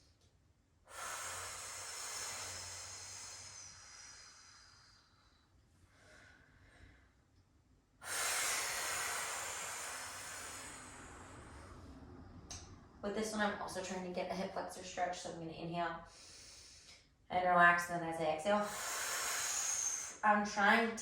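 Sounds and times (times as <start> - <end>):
faint intake of breath: 8.0 - 12.4, 18.6 - 20.2
woman exhaling hard: 8.0 - 12.4, 18.6 - 20.2.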